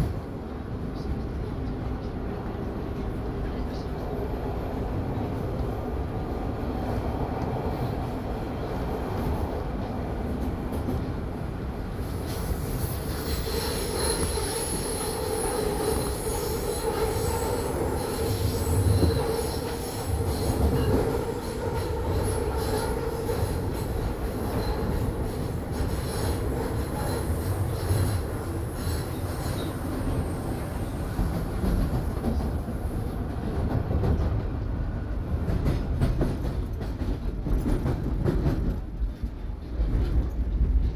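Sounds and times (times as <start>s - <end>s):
subway train rumble: 0.0s - 40.9s
high wheel squeal: 12.8s - 21.5s.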